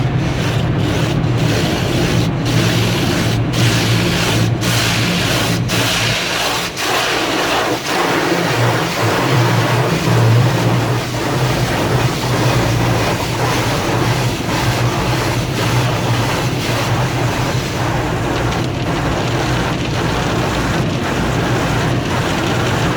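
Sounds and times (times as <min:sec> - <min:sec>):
water and cloth rushing on car: 0:00.0 - 0:22.9
machinery hum: 0:07.2 - 0:22.9.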